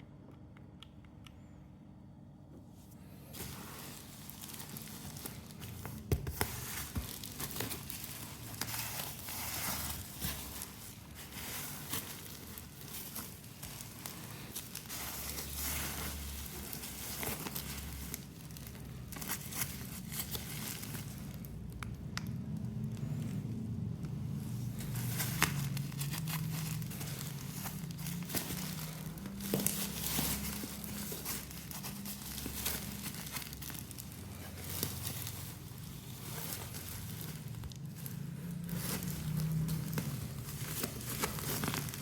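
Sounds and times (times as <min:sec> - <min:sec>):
packaging crinkling and tearing: 0:03.0 - 0:42.0.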